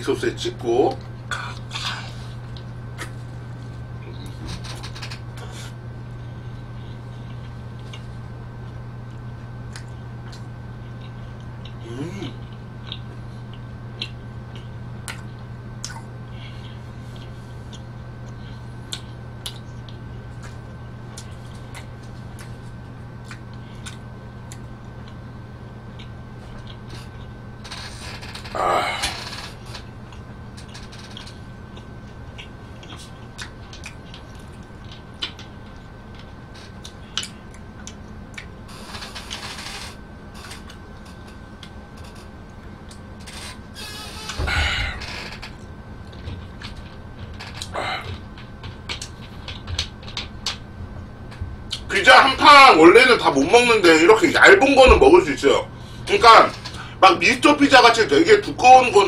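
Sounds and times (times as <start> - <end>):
steady low hum: 0.0 - 59.0
chewing and mouth clicks: 1.0 - 3.2, 7.2 - 22.6, 23.2 - 25.2, 25.9 - 27.4, 30.1 - 38.6
wet mouth clicks and smacks: 14.0 - 16.1.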